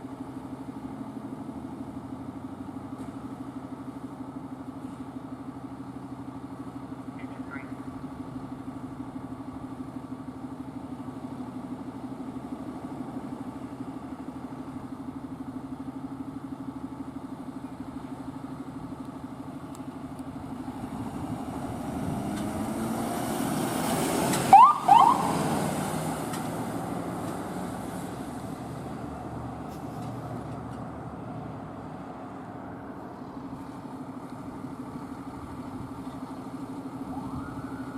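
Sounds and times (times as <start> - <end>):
low engine hum: 0.0 - 37.9
emergency vehicle passing: 20.6 - 34.0, 36.4 - 37.9
short rising siren blips: 24.4 - 25.5.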